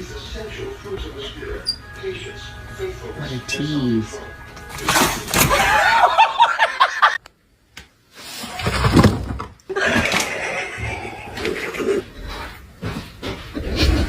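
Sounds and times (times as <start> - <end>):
person laughing in bursts: 5.5 - 7.2, 9.7 - 12.0.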